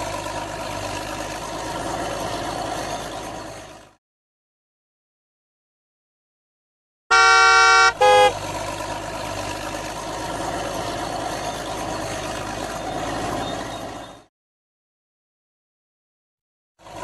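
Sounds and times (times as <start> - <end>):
toy horn honking: 7.1 - 8.4.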